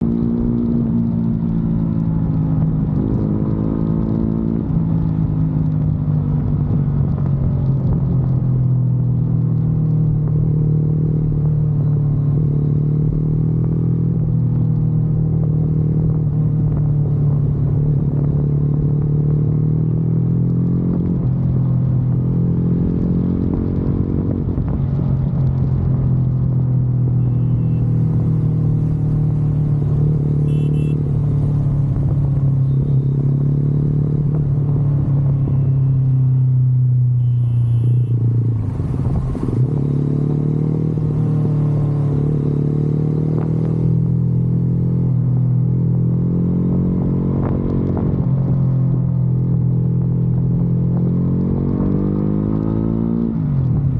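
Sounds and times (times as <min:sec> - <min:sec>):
motorcycle engine running: 0:21.3 - 0:46.4.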